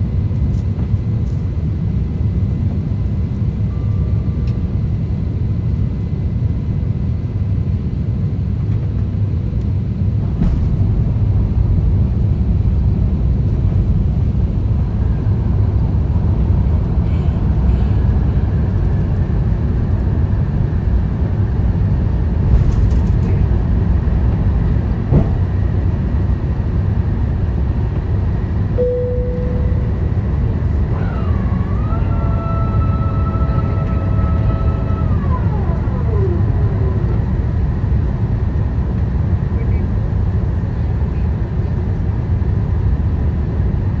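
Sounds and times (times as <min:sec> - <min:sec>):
airliner engine rumble: 0:00.0 - 0:44.0
steady electronic tones: 0:28.8 - 0:37.3.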